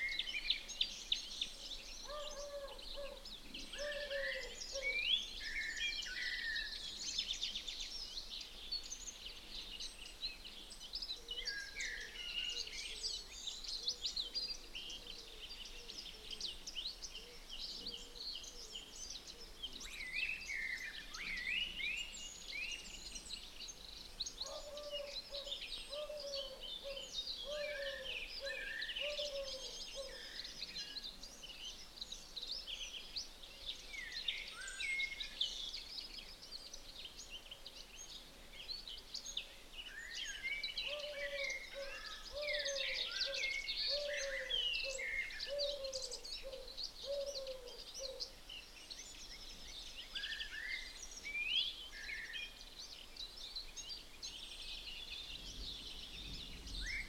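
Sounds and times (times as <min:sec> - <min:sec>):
chorus of birds singing: 0:00.0 - 0:57.0.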